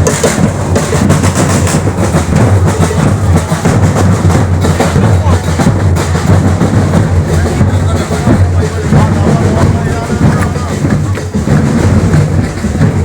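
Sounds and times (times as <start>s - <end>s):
loud drumming: 0.0s - 13.0s
music: 0.0s - 13.0s
voices: 1.5s - 13.0s.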